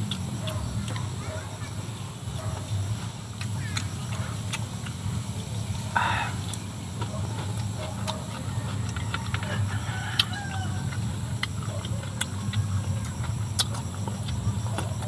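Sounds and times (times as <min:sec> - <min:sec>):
chewing crunchy cucumber: 0:00.0 - 0:15.0
wet mouth clicks: 0:11.0 - 0:15.0.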